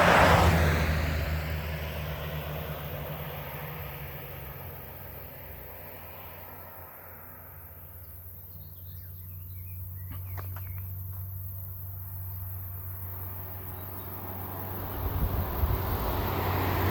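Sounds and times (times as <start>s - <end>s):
vehicle approaching: 0.0s - 16.9s
bird chirps: 8.4s - 11.3s.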